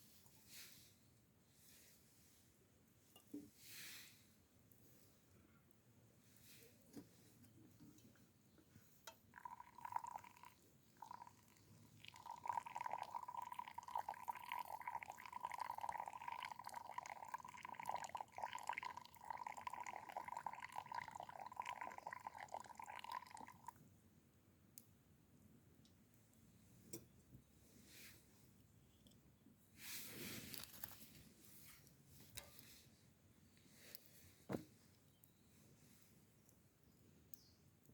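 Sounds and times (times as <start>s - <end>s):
liquid pouring in a thin stream: 9.4s - 23.8s.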